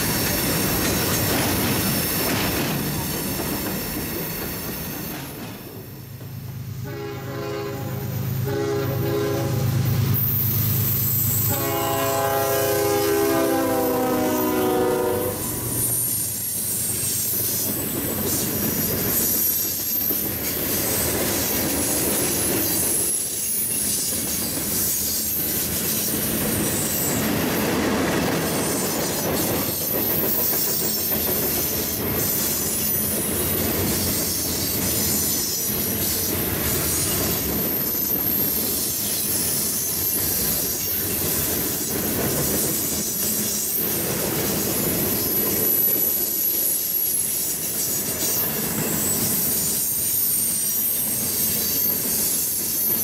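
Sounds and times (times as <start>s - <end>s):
wheel squeal on rail: 0.0s - 6.2s, 6.9s - 53.0s
train wheels clicking over rail: 0.0s - 6.4s.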